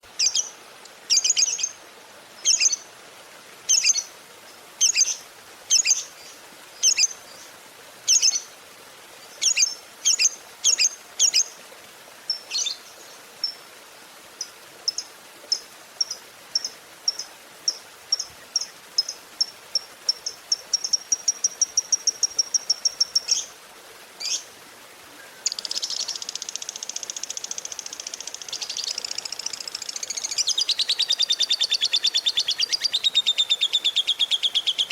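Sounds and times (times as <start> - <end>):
lovebird chirping and trilling: 3.7 - 4.1, 4.8 - 6.0, 8.1 - 8.4, 9.4 - 11.4.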